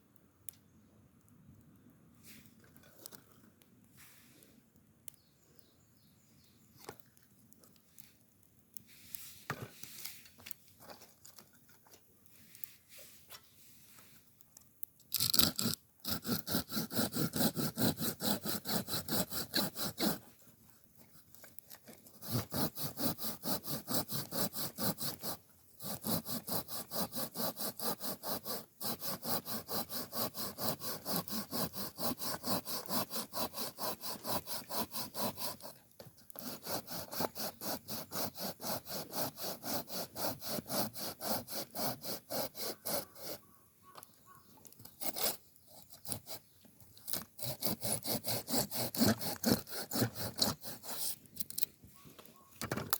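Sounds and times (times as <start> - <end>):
hand saw cutting wood: 15.1 - 43.5, 44.8 - 51.7.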